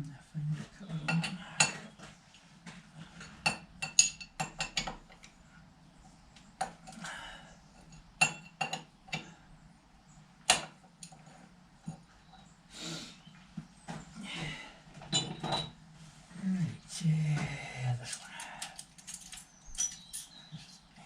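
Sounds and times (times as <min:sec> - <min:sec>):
steel tools clinking: 0:18.1 - 0:20.4.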